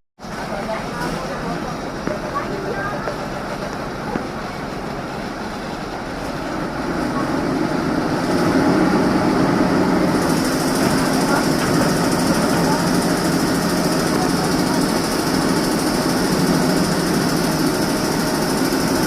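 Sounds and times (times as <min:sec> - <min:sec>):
motor running steadily: 0:00.3 - 0:19.0.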